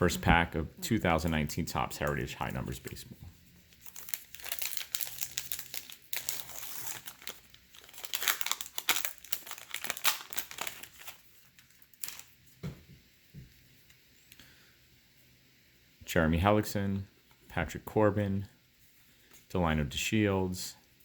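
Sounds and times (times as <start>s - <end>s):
foil pack tearing and crinkling: 3.7s - 12.4s.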